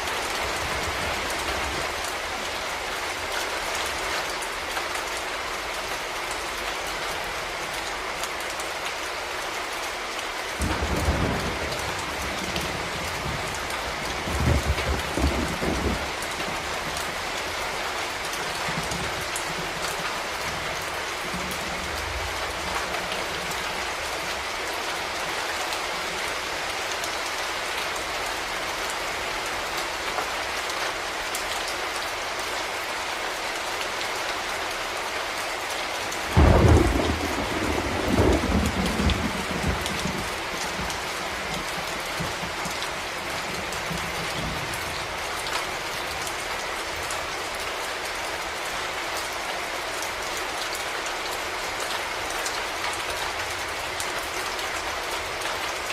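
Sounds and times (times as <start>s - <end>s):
heavy rain falling: 0.0s - 55.9s
thunder crack and rumble: 10.6s - 17.1s, 36.3s - 42.8s.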